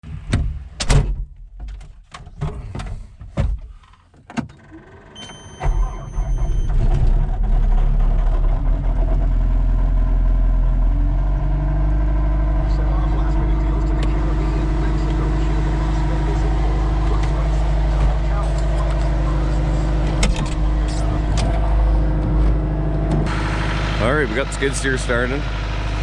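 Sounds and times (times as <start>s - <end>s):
knocks and clunks: 0.0s - 4.6s, 16.6s - 23.4s
diesel engine starting and idling: 4.6s - 26.0s
electronic warning tone: 5.2s - 7.3s.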